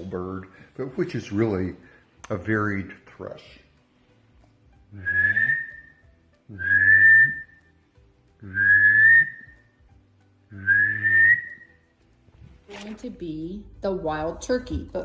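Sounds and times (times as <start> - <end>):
man whistling and humming: 4.9 - 7.8, 8.4 - 9.7, 10.5 - 11.8.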